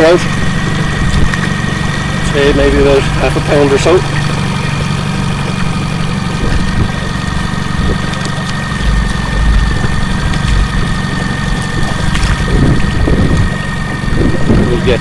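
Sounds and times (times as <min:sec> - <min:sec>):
outboard motor idling: 0:00.0 - 0:15.0.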